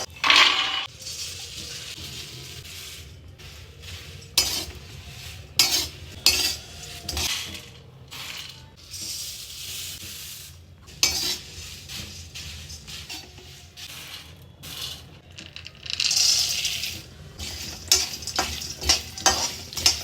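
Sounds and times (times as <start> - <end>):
metal spoon clanking in pot: 4.4 - 4.8, 5.6 - 9.2, 14.8 - 20.0.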